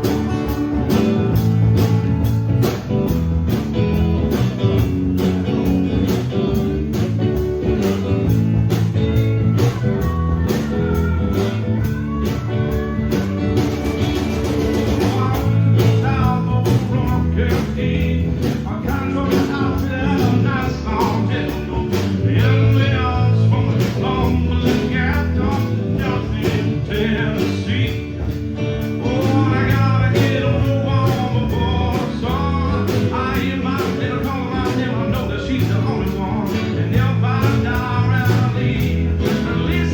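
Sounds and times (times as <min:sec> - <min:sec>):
blues-rock band playing: 0:00.0 - 0:39.9
person singing: 0:08.3 - 0:39.9.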